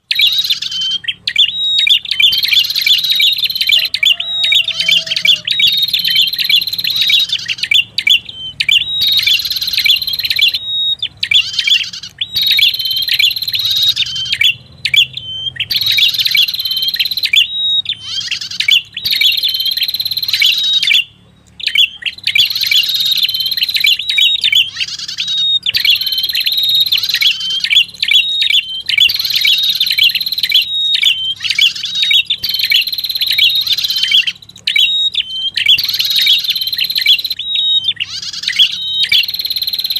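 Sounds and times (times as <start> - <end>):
songbird high chirping: 0.0 - 39.9.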